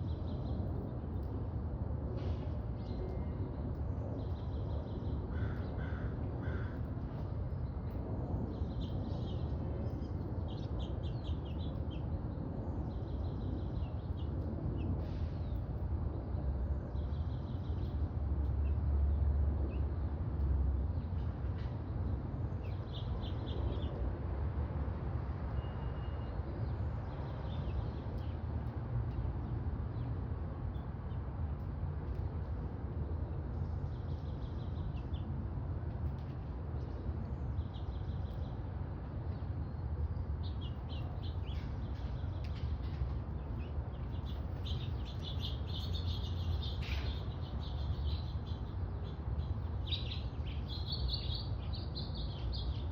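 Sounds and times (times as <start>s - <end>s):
small birds chirping: 4.1s - 15.7s, 36.1s - 52.9s.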